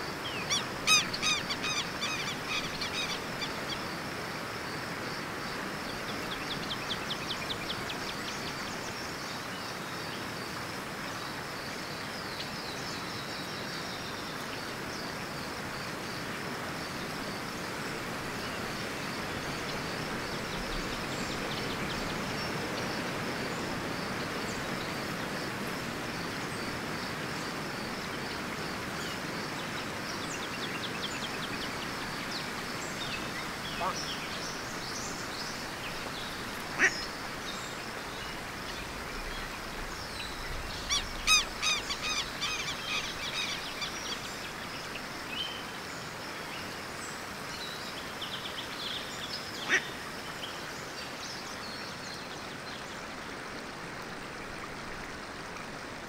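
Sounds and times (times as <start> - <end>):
birds chirping: 30.2 - 44.6.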